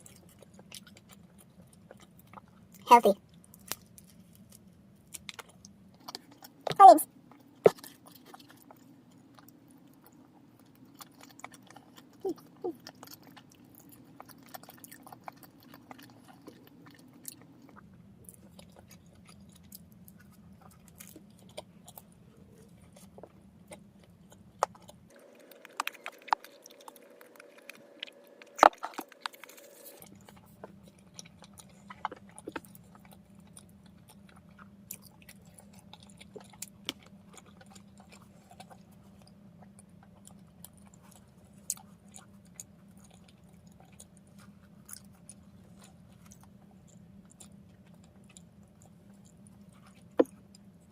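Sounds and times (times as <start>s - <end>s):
faint low hum: 0.0s - 50.9s
person chewing food: 0.0s - 50.9s
crunchy bites: 10.7s - 44.1s.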